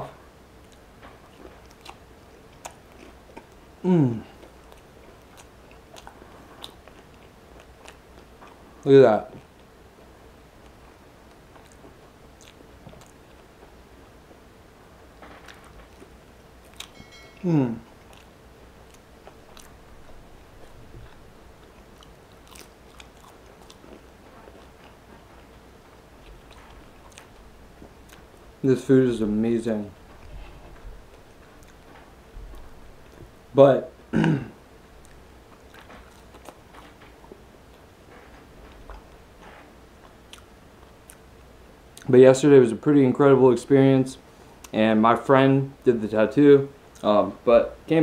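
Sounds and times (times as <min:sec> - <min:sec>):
crunchy chewing: 0:00.6 - 0:14.4, 0:15.2 - 0:28.6, 0:29.7 - 0:33.4, 0:34.9 - 0:42.1
person humming: 0:03.8 - 0:04.4, 0:17.4 - 0:17.9.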